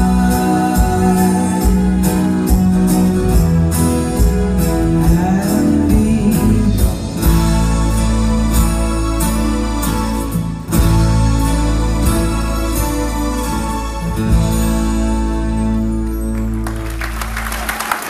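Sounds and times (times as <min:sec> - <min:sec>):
steady drum beat: 0:00.0 - 0:09.8
electric guitar: 0:00.0 - 0:18.0
live pop band playing: 0:00.0 - 0:18.0.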